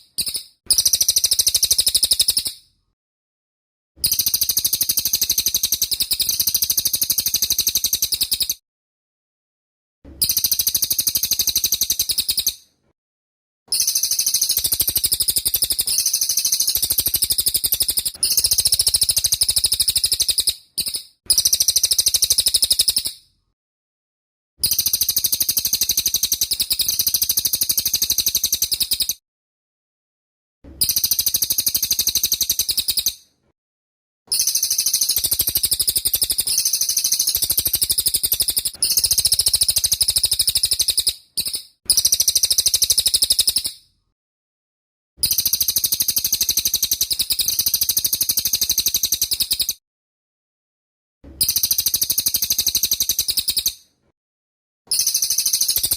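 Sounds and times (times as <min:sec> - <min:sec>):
songbird singing shrill rapid song: 0:13.8 - 0:23.1.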